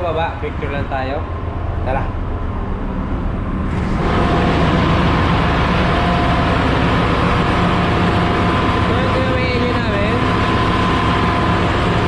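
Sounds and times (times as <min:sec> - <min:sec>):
engine room machinery hiss and hum: 0:00.0 - 0:12.0.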